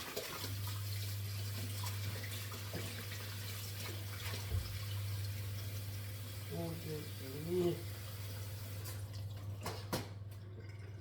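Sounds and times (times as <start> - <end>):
water running from a tap: 0.0 - 9.6.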